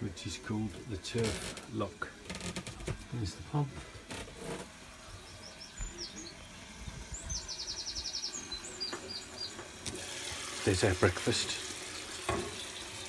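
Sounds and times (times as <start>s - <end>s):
small birds chirping: 3.5s - 9.8s, 11.7s - 13.0s
bird trill: 7.1s - 9.6s.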